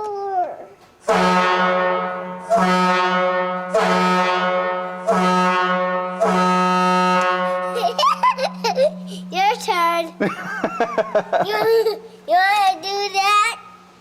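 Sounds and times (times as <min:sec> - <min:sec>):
truck air horn blasts: 0:01.0 - 0:07.9
low hum: 0:01.6 - 0:12.3.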